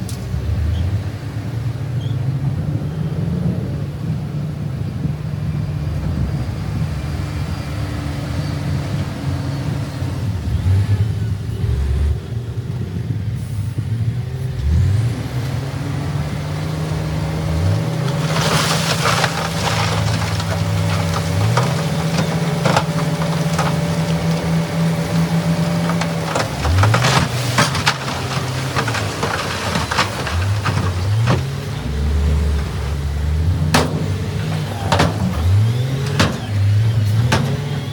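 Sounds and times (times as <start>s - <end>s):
diesel machine engine revving: 2.4s - 37.9s
sharp clatters and knocks: 17.4s - 37.9s.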